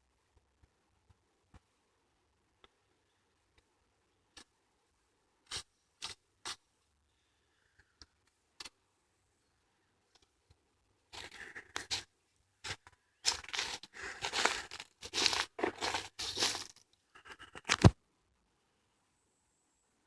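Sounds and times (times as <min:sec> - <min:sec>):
footsteps crunching on path: 0:12.7 - 0:16.8.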